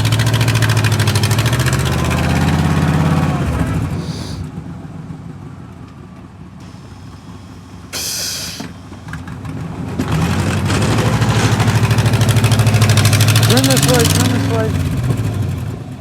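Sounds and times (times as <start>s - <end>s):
vehicle engine revving: 0.0s - 4.8s, 6.6s - 16.0s
short hiss: 4.0s - 4.5s, 6.7s - 9.0s.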